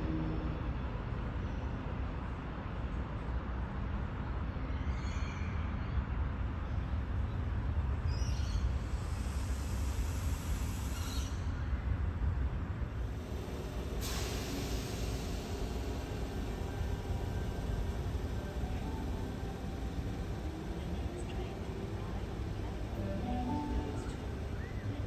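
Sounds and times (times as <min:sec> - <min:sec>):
train rumbling: 0:06.1 - 0:25.0.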